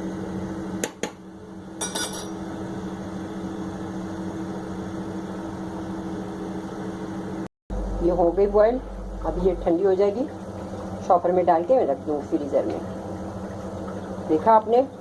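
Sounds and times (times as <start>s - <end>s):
steady low hum: 1.3s - 15.0s
utensils clinking against a pot: 1.8s - 2.4s.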